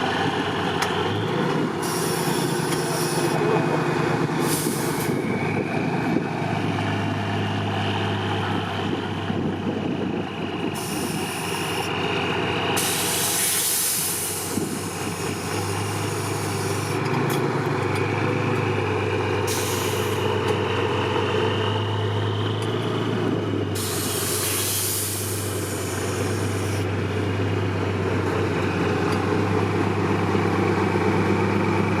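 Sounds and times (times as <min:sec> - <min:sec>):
diesel truck engine running: 0:00.0 - 0:32.0
air brakes hissing: 0:01.8 - 0:03.5, 0:04.4 - 0:05.6, 0:10.7 - 0:12.0, 0:12.8 - 0:17.0, 0:19.4 - 0:20.4, 0:23.8 - 0:26.9.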